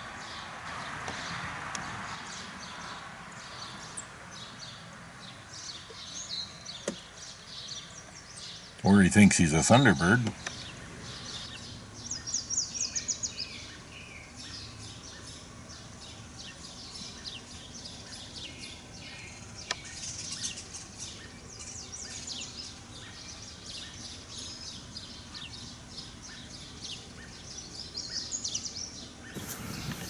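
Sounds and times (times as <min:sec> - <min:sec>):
birds chirping: 0:29.4 - 0:30.0.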